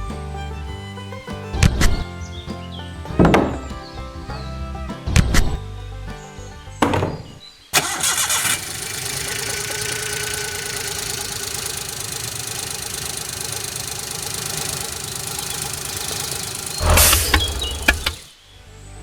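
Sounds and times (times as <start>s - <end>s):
mini tractor engine starting: 7.8s - 18.3s
tractor engine rattling: 7.8s - 18.3s.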